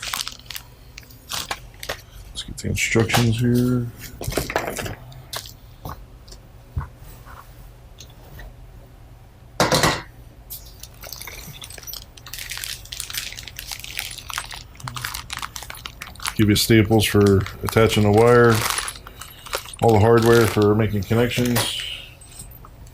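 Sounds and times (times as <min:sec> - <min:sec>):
plastic and paper crinkling: 0:00.0 - 0:05.6, 0:10.6 - 0:22.5.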